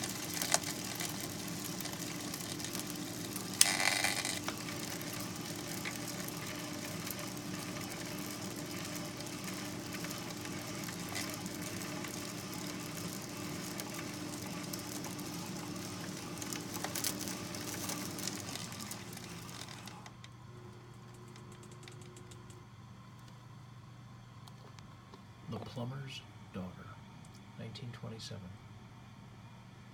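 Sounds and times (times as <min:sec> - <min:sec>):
machine running with hum: 0:00.0 - 0:29.9
scattered clicks: 0:21.0 - 0:22.6.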